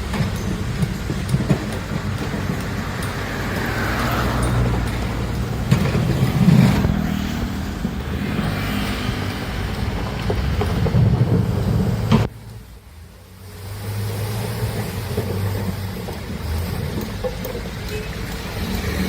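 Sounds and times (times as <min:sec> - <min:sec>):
sharp metallic knocks: 0:00.0 - 0:12.3
excavator diesel engine running: 0:00.0 - 0:19.0.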